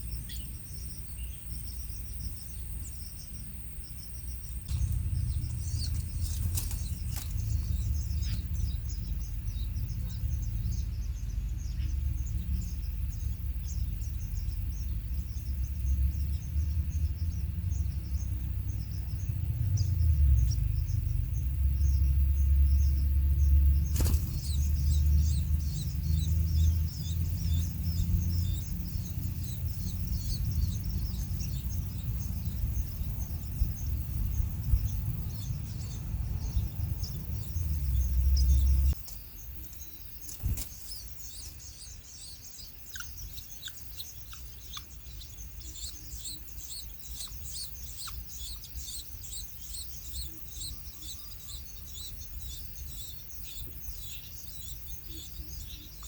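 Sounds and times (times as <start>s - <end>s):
small birds chirping: 0.0s - 56.0s
low rumble: 4.6s - 39.0s.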